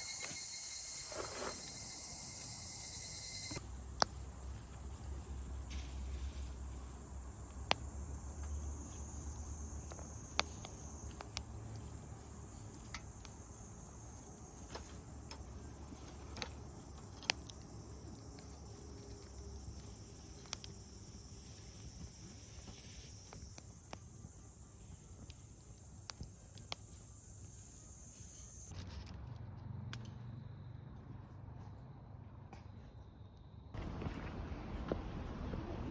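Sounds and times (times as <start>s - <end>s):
insects trilling: 0.0s - 28.7s.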